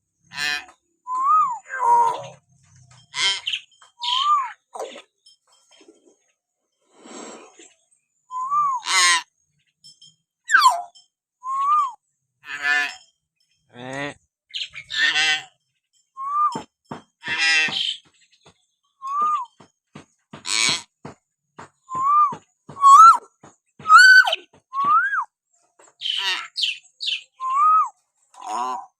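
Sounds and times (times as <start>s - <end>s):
myna whistling and calling: 1.1s - 2.4s, 3.4s - 4.6s, 8.3s - 8.9s, 10.5s - 12.0s, 16.2s - 16.7s, 19.0s - 19.6s, 21.8s - 25.3s, 26.1s - 28.0s.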